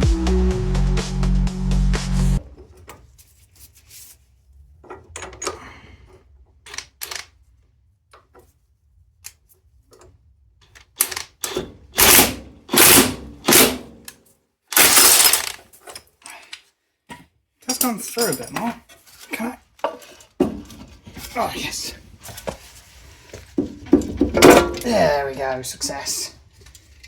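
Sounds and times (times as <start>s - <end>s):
metal tools clicking and clinking: 12.8s - 16.6s, 17.7s - 20.4s, 24.0s - 25.0s.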